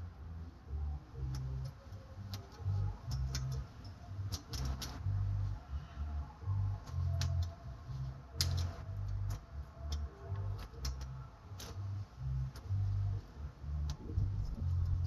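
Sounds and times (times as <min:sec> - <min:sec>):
low pulsing hum: 0:00.0 - 0:15.0
metal clicks and ticks: 0:01.2 - 0:05.1, 0:06.8 - 0:07.6, 0:08.4 - 0:12.8.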